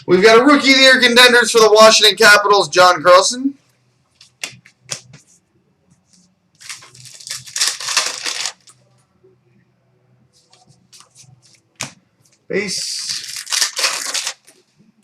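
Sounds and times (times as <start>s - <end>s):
foil wrapper tearing and crinkling: 6.6s - 8.7s, 12.9s - 14.5s.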